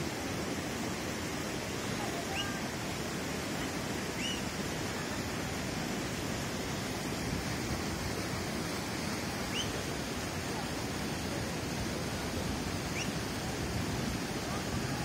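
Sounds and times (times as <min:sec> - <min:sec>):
fast river water rushing: 0:00.0 - 0:15.0
faint high chirps: 0:04.2 - 0:04.5, 0:09.5 - 0:09.8, 0:12.9 - 0:13.2.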